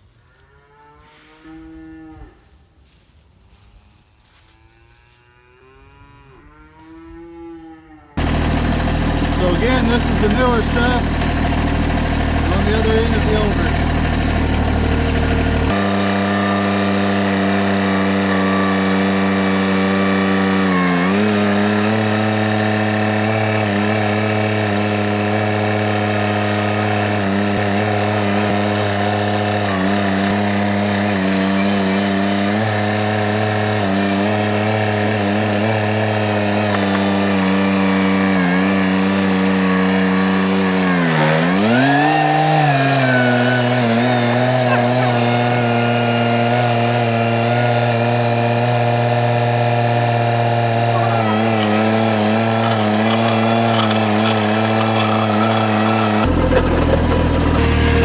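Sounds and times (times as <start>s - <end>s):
tractor engine running: 8.2s - 58.0s.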